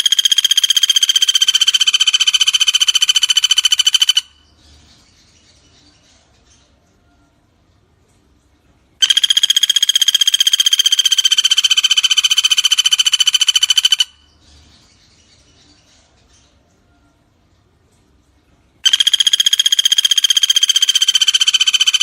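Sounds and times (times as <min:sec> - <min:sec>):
woodpecker trilling: 0:00.0 - 0:04.5, 0:09.0 - 0:14.4, 0:18.8 - 0:22.0.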